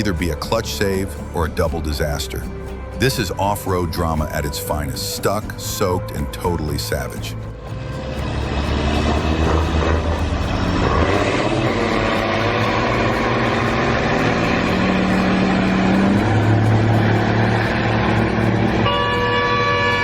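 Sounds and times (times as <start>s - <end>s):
heavy vehicle engine running: 7.5s - 20.0s
vehicle horn: 18.7s - 20.0s.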